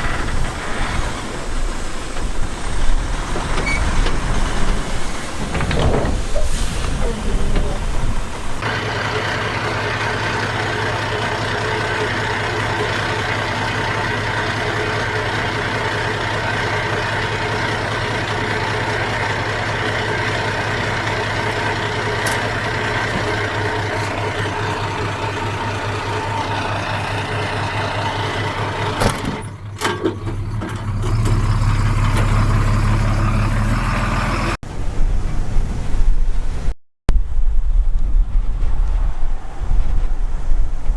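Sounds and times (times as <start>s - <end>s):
heavy diesel engine running: 0.0s - 5.0s, 8.6s - 34.6s.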